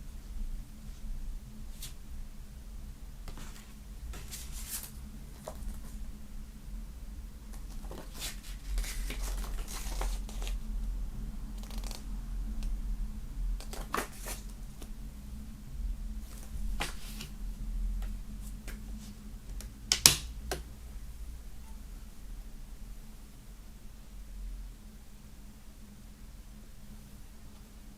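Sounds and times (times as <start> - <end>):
faint low hum: 0.0 - 27.9
paper and cardboard rustling: 3.3 - 6.0, 7.5 - 10.6, 13.6 - 14.9, 16.2 - 17.4.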